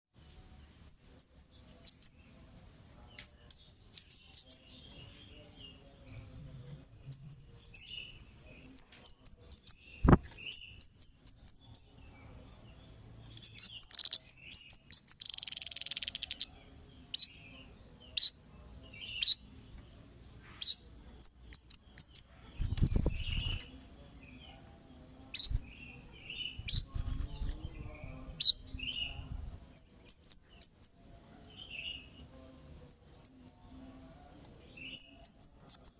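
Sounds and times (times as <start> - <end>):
songbird chirping: 0.2 - 35.9
buzzy bird trill: 13.4 - 16.5, 20.6 - 23.6
low rumbling noise: 26.5 - 29.7.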